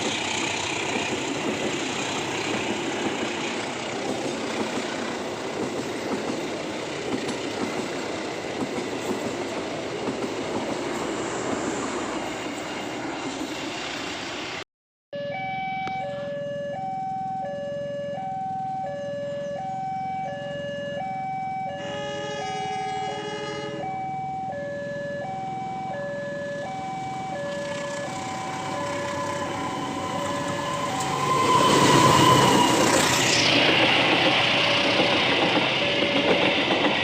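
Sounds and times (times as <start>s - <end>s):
approaching train rumble: 0.0s - 14.6s, 21.8s - 37.0s
level crossing alarm two tones: 15.2s - 22.0s, 23.8s - 32.8s
fuller alarm tone: 15.2s - 33.4s.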